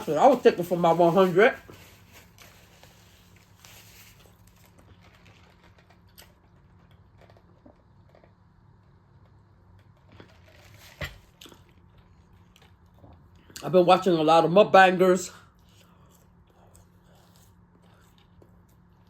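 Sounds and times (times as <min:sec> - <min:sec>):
crinkling: 0:00.0 - 0:08.4, 0:09.8 - 0:13.2.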